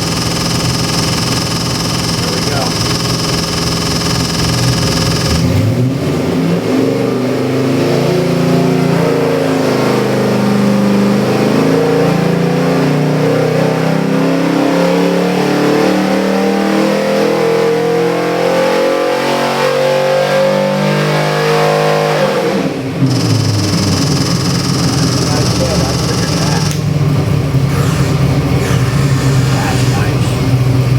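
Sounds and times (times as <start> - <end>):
engine idling: 0.0 - 6.0, 23.0 - 30.9.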